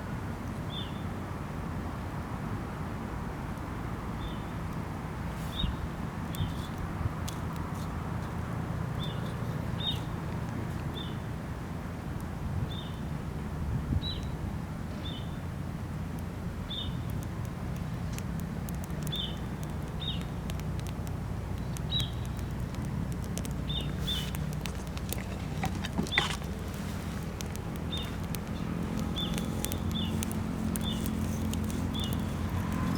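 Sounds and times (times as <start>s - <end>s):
wood fire crackling: 4.5s - 13.1s, 15.5s - 32.9s
small bird chirping: 19.0s - 20.5s, 21.6s - 22.8s, 23.4s - 26.8s, 27.4s - 32.9s.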